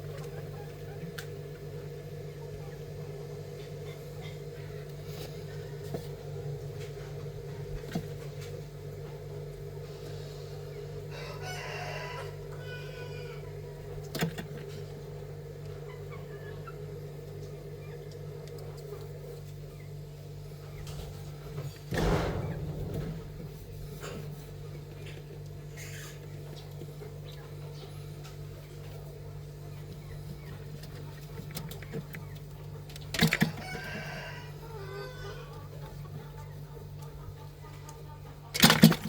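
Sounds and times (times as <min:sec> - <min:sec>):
steady low hum: 0:00.0 - 0:39.0
rooster crowing: 0:11.0 - 0:13.8, 0:33.4 - 0:35.8.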